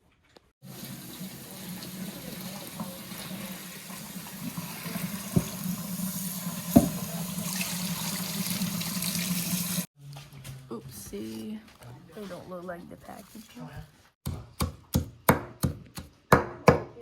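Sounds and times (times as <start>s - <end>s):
tap water running into sink: 0.6s - 9.9s.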